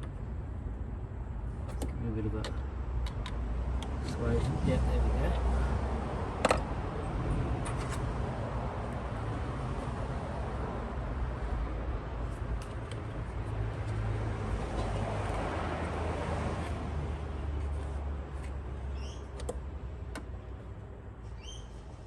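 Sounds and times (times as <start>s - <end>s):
small bird chirping: 18.9s - 19.3s, 21.3s - 21.8s.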